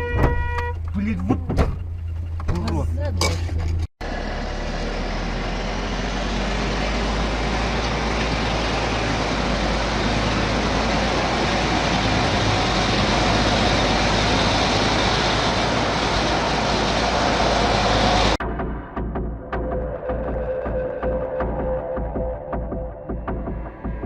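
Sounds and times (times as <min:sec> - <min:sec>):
rushing road noise: 0:00.0 - 0:18.5
heavy vehicle engine: 0:00.7 - 0:19.0.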